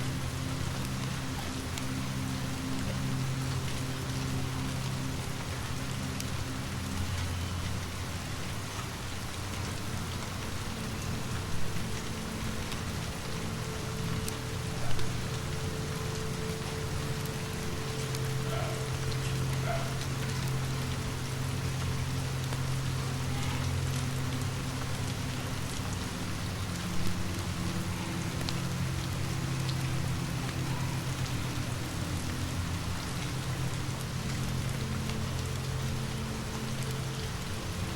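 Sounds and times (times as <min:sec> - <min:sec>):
fireplace crackling: 0:00.0 - 0:37.9
steady rain falling: 0:00.0 - 0:37.9.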